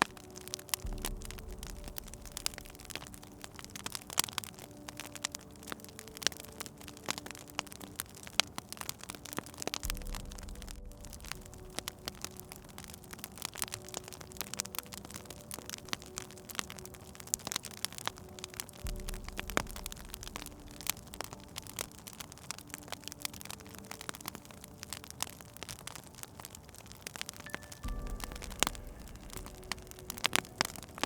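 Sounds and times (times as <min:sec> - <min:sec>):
wood fire crackling: 0:00.0 - 0:31.0
faint low held tones: 0:27.4 - 0:31.0.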